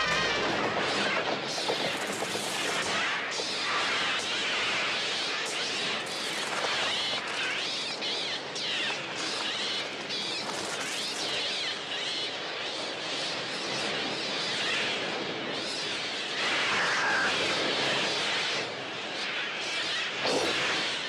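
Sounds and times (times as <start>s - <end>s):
flock of birds screeching: 16.4s - 17.7s.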